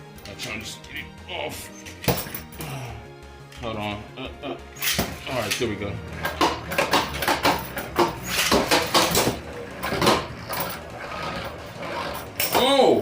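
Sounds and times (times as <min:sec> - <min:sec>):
spinning tops clashing: 0:06.3 - 0:10.8.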